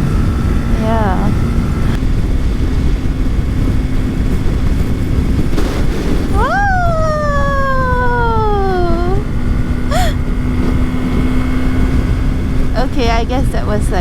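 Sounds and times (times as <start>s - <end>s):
motorcycle engine drone: 0.0s - 14.0s
wind roar on microphone: 0.0s - 14.0s.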